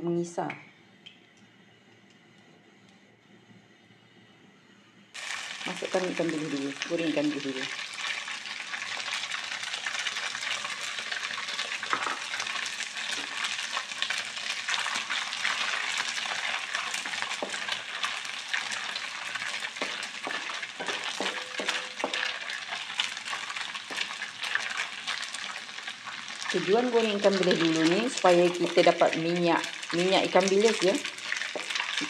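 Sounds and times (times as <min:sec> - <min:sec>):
fish deep-frying in oil: 0:05.2 - 0:32.0
spatula knocking against pan: 0:20.3 - 0:22.3.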